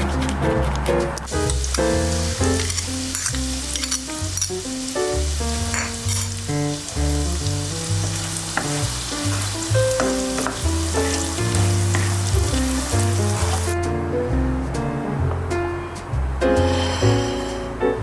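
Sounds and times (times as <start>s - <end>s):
background music with bass line: 0.0s - 18.0s
chicken sizzling in a pan: 1.3s - 13.8s.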